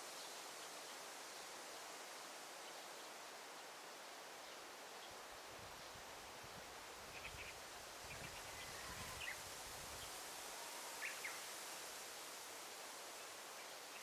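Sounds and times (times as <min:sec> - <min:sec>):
steady forest hiss: 0:00.0 - 0:14.0
faint bird chirps: 0:10.8 - 0:11.5.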